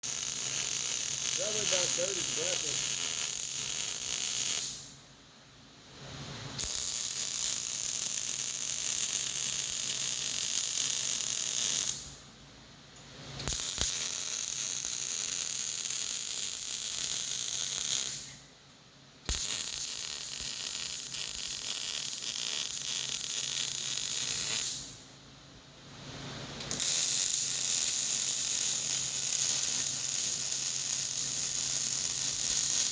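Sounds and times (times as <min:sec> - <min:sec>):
welder arc crackling buzz: 0:00.0 - 0:04.9, 0:06.6 - 0:12.2, 0:13.4 - 0:18.3, 0:19.3 - 0:25.0, 0:26.6 - 0:32.9.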